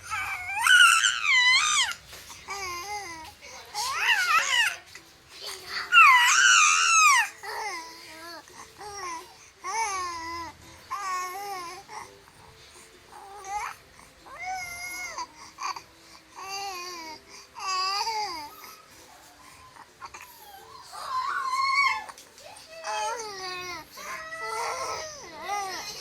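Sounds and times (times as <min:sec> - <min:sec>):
baby babbling and cooing: 0:00.0 - 0:12.3, 0:13.1 - 0:15.8, 0:19.5 - 0:26.0.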